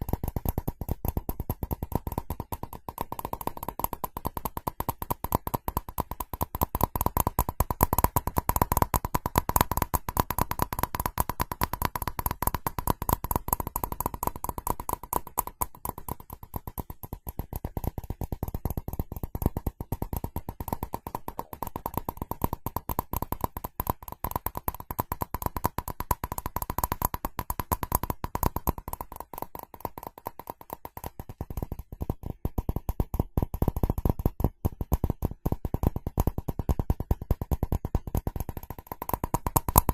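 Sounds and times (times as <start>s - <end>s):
rapid tapping on ceramic: 0.0s - 39.9s.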